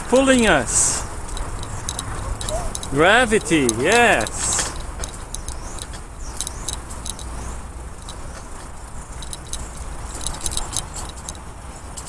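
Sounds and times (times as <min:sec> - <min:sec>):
low rumble of rolling bicycle: 0:00.8 - 0:03.0, 0:04.4 - 0:12.0
bicycle freewheel clicking: 0:01.1 - 0:03.0, 0:09.2 - 0:11.4.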